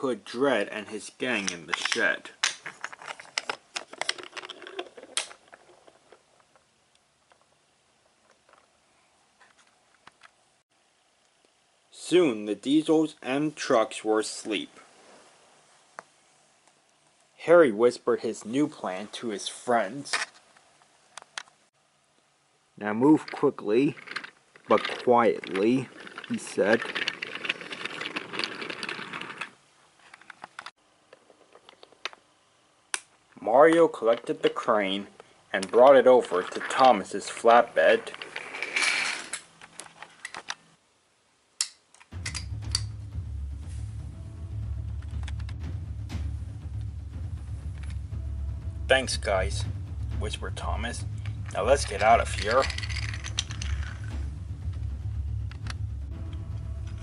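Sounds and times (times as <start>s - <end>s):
small clicks and clatter: 1.7s - 7.5s, 23.2s - 32.2s, 51.3s - 54.2s.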